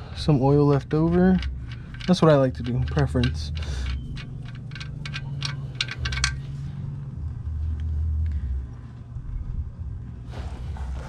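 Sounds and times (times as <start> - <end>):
low rumble: 0.0 - 11.0
wrench clinking on metal bolt: 0.6 - 6.6.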